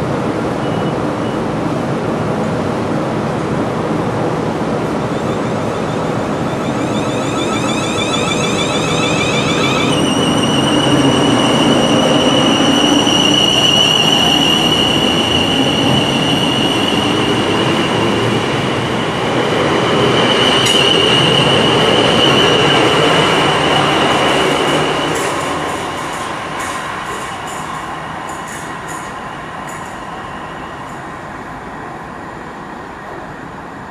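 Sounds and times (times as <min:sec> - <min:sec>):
train wheels rumbling on rail: 0:01.6 - 0:33.9
high steady whine: 0:04.7 - 0:11.3.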